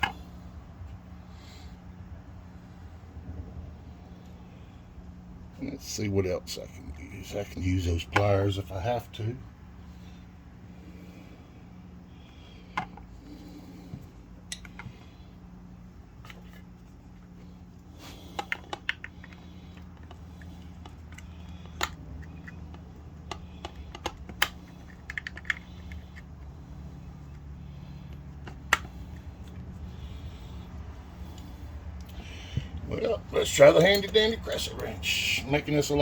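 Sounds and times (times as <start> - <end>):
steady low hum: 0.0 - 36.0
tools clinking on metal parts: 33.6 - 34.4.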